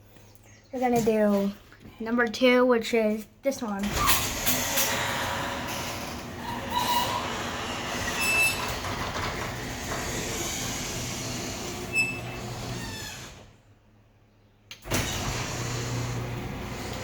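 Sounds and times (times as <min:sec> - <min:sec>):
garage door motor hum: 0:03.8 - 0:13.7, 0:14.8 - 0:17.0
high squeak: 0:06.4 - 0:09.0, 0:11.8 - 0:13.2.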